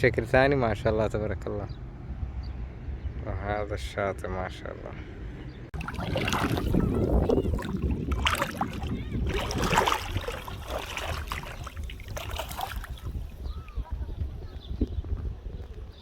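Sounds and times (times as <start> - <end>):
wind buffeting microphone: 5.5 - 16.0
surf washing: 5.8 - 13.4.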